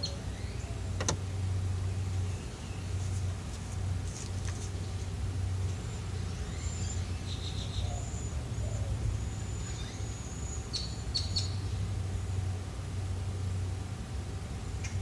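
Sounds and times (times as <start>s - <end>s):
birds chirping and whistling: 0.0s - 0.9s, 5.8s - 11.9s
steady low hum: 0.0s - 15.0s.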